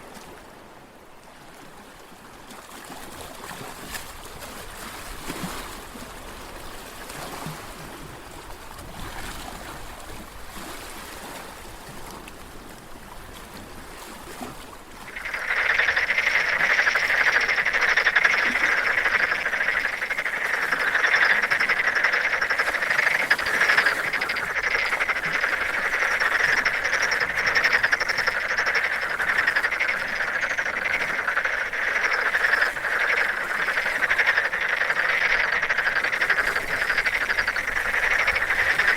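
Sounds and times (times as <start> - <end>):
water lapping: 0.0 - 38.9
chorus of frogs croaking: 15.0 - 38.9.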